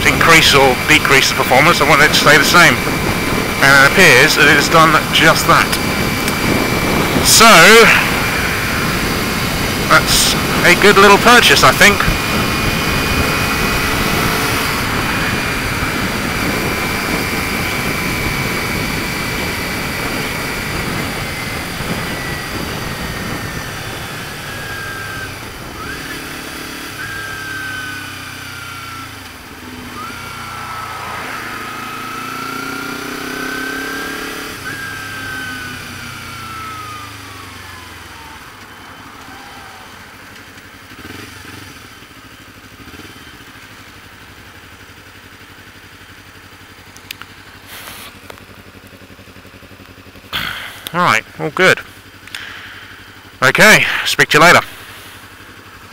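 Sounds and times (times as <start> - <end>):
motorcycle engine: 0.0 - 55.9
wind noise: 5.0 - 10.6.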